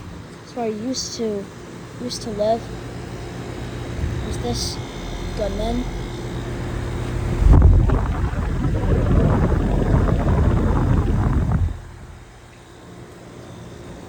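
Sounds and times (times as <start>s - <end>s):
heat pump unit humming: 0.0s - 14.0s
fan air rushing over microphone: 6.6s - 12.5s.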